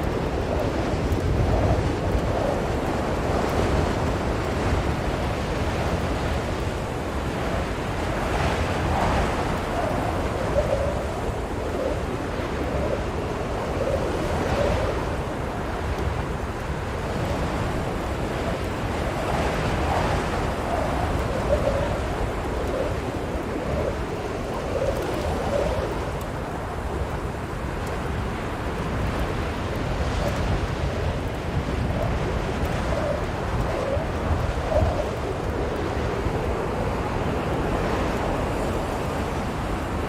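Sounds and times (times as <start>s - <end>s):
blizzard wind howling: 0.0s - 40.0s.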